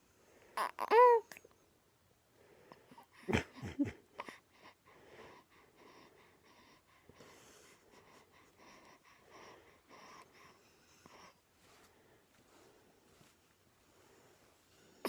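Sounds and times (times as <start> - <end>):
baby vocal noises: 0.6 - 1.4.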